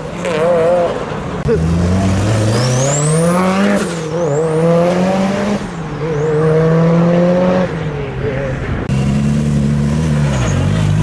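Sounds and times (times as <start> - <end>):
car engine accelerating through gears: 1.4 - 7.8.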